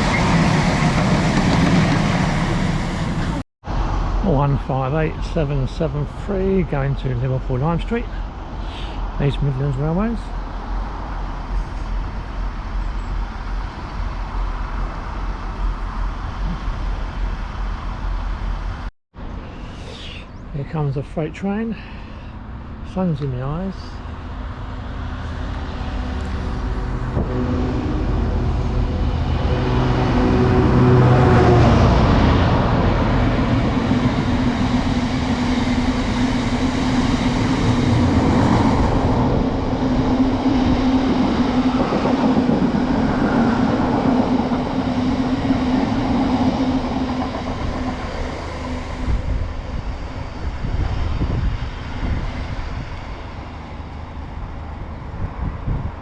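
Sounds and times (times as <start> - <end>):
train wagons rolling: 0.0 - 3.4
locomotive engine: 0.0 - 55.6.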